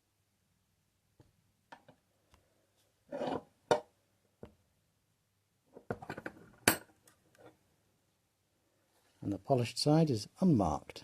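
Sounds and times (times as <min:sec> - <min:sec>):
metal scrape: 0:03.1 - 0:03.5.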